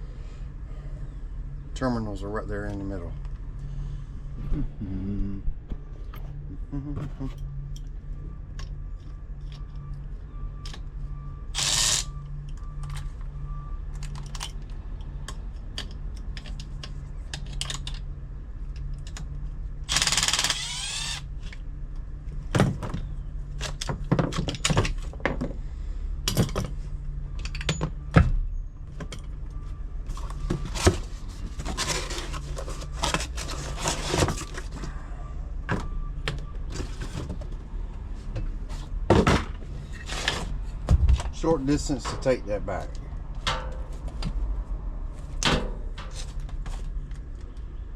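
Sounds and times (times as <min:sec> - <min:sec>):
steady low hum: 0:00.0 - 0:24.0, 0:25.0 - 0:47.9
tools clicking and clattering: 0:41.1 - 0:44.3.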